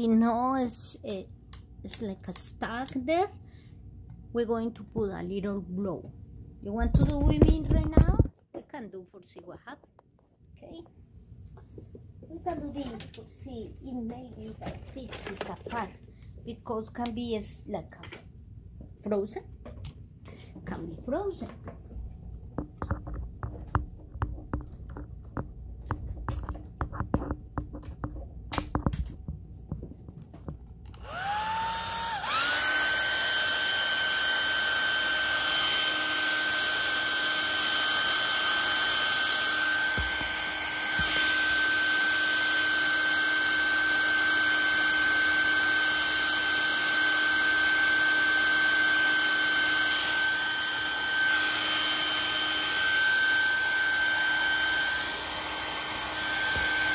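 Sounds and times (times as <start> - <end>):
hair dryer blowing: 30.9 - 56.9.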